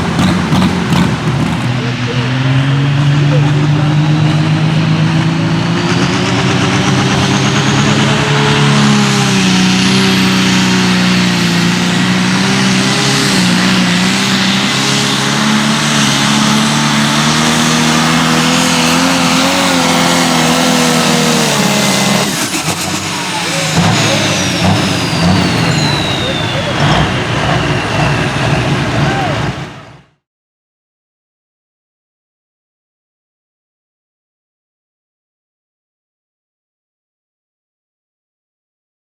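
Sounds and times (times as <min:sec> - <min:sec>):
tractor engine under full load: 0:00.0 - 0:30.2
high turbo whistle: 0:19.0 - 0:29.8.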